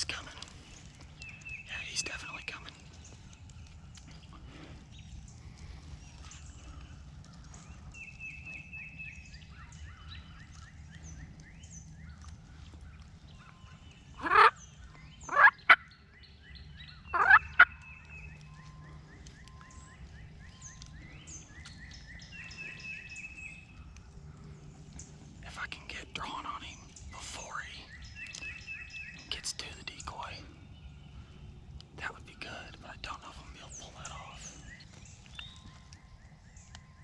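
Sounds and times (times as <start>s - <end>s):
faint songbird trills: 0.0s - 37.0s
turkey gobbling: 14.2s - 14.6s, 15.3s - 15.8s, 17.1s - 17.8s.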